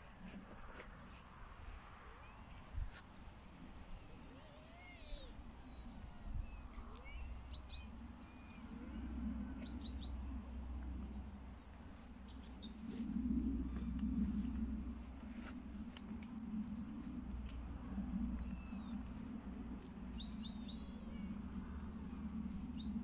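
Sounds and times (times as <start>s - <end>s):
small birds chirping: 3.9s - 15.5s, 18.3s - 23.0s
steady low rumble: 6.9s - 23.0s.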